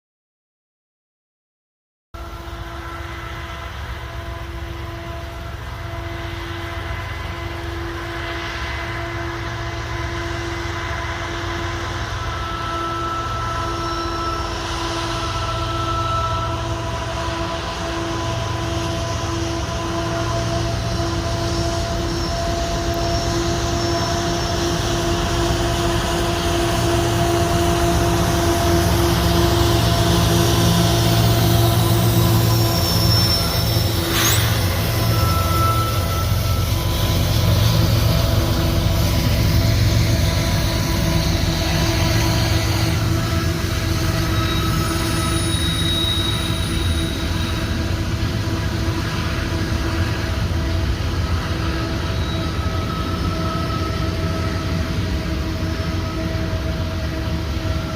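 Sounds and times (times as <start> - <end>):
diesel locomotive engine rumble: 2.2 - 57.9
wheel squeal: 4.6 - 57.9
steady tones: 11.6 - 57.9.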